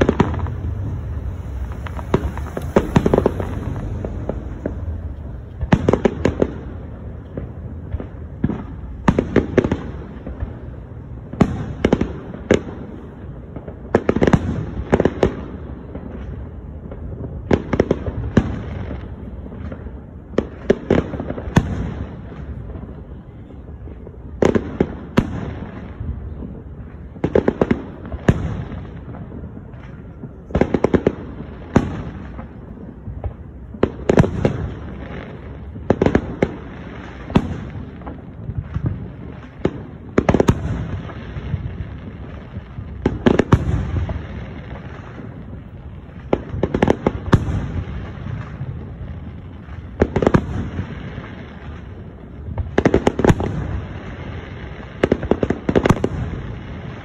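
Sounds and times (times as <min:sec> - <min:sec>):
low rumble: 0:00.0 - 0:09.1
fireworks bursting with bangs: 0:00.0 - 0:57.0.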